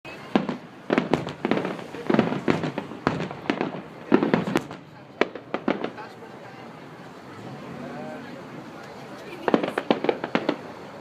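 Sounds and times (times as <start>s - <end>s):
fireworks bangs and crackling: 0.1s - 6.8s, 9.1s - 11.0s.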